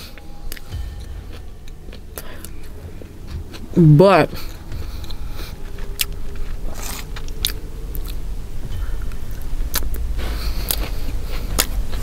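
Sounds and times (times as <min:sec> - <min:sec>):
low steady hum: 0:00.0 - 0:12.0
chewing sandwich: 0:04.4 - 0:08.2, 0:09.7 - 0:12.0.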